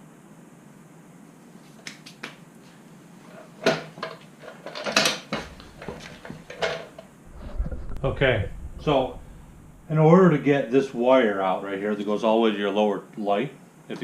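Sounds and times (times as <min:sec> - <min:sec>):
motorcycle parts being handled: 0:03.6 - 0:07.0.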